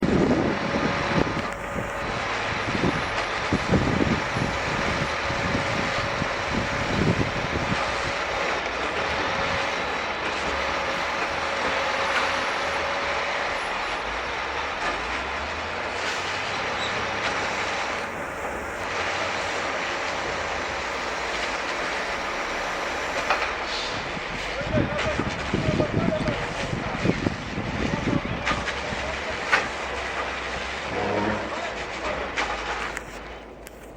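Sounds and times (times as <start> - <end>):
thin steady whine: 0.0 - 15.0, 17.9 - 19.0
truck engine running: 0.0 - 33.9.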